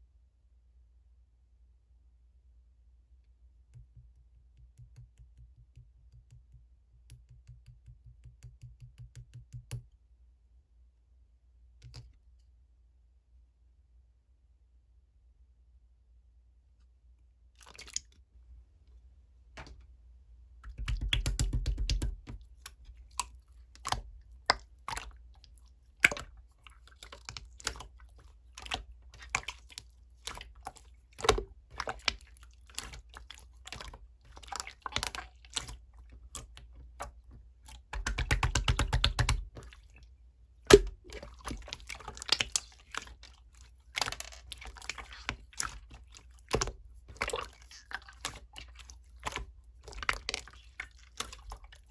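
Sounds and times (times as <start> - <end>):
slime squished by hand: 20.6 - 40.0, 40.7 - 51.9.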